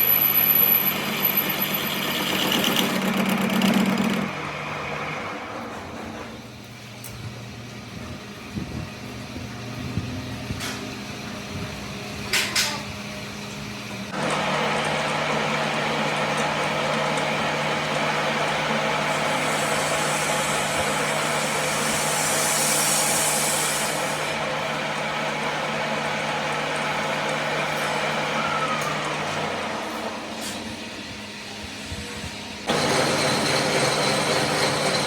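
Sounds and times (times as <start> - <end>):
harsh machining noise: 0.0 - 5.8, 14.1 - 35.0
workshop machinery humming: 0.0 - 35.0.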